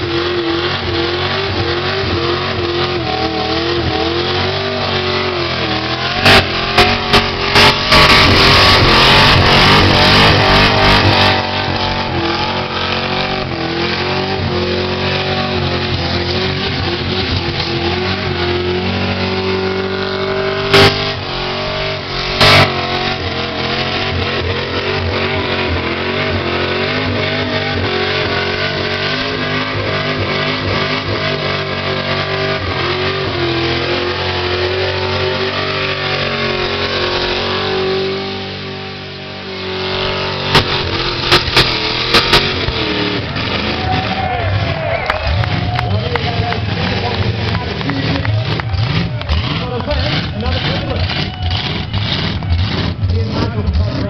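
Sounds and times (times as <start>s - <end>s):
car engine at high revs: 0.0s - 54.0s
sharp bangs: 3.5s - 15.5s, 39.6s - 53.0s
tyres spinning: 39.8s - 54.0s.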